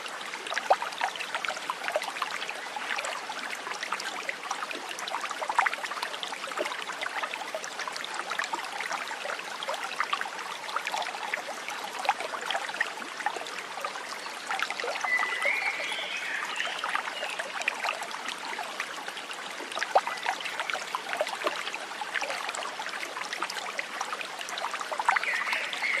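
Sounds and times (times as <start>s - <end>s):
water rushing and trickling: 0.0s - 26.0s.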